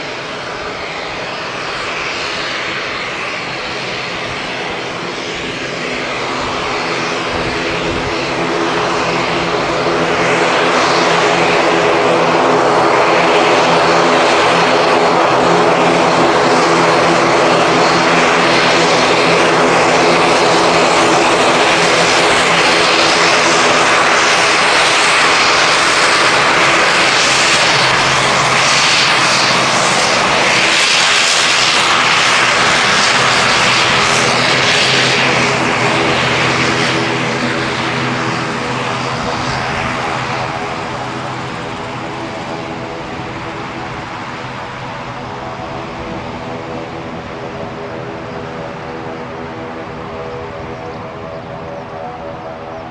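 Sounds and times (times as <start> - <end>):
turboprop engines running: 0.0 - 52.9.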